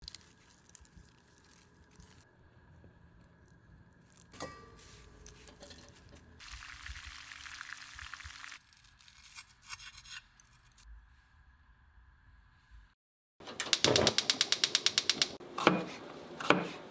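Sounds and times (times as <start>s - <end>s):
small crackles: 0.0s - 2.3s, 5.3s - 9.6s
frying crackling hiss: 4.2s - 9.0s.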